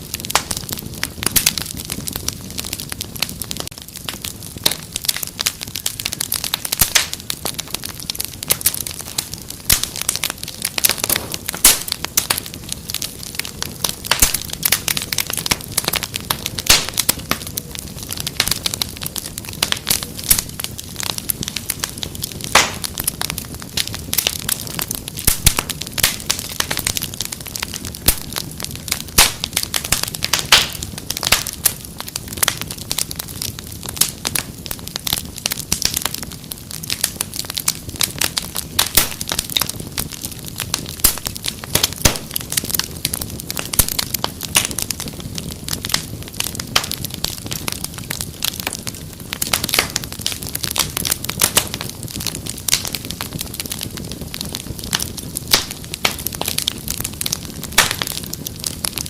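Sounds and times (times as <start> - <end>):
low rumble of flames: 0.0 - 59.0
wood fire crackling: 0.0 - 59.0.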